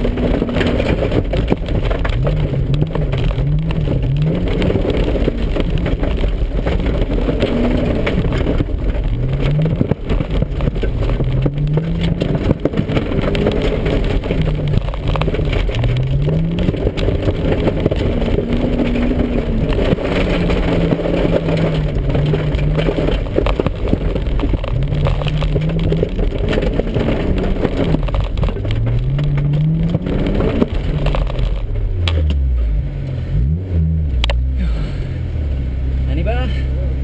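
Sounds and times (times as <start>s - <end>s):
tyres crackling over stubble: 0.0s - 35.2s
car engine revving: 0.0s - 37.0s.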